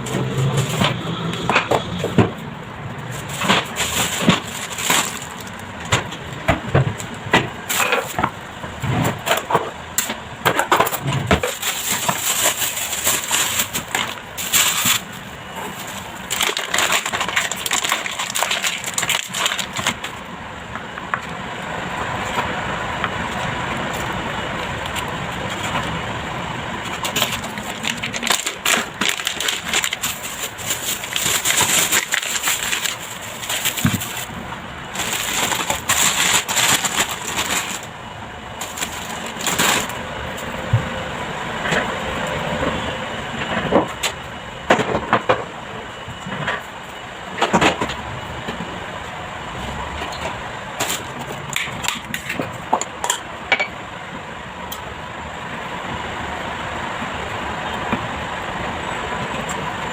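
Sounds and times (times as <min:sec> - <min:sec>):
scraping and rustling: 0:03.0 - 0:07.0, 0:10.5 - 0:20.2, 0:26.8 - 0:37.9, 0:38.6 - 0:40.0.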